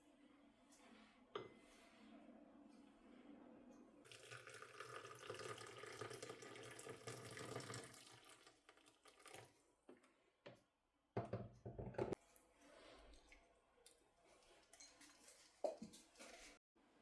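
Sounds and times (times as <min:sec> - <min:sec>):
water running from tap: 0:04.1 - 0:09.5.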